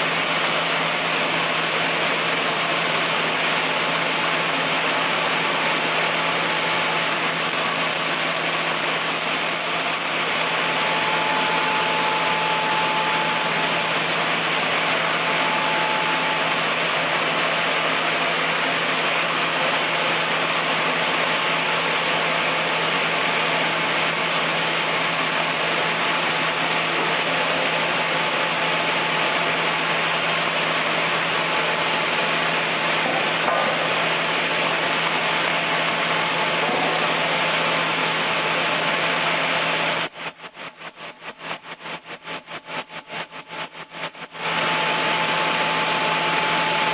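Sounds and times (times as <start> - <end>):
saw engine humming: 5.5 - 19.4.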